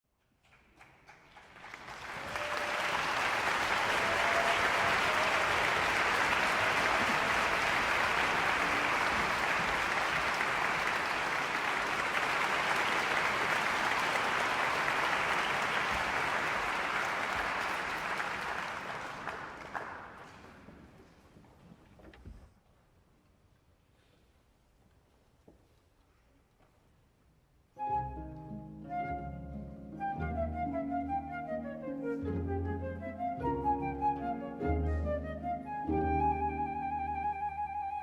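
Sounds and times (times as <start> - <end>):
audience applauding: 0.4 - 21.0.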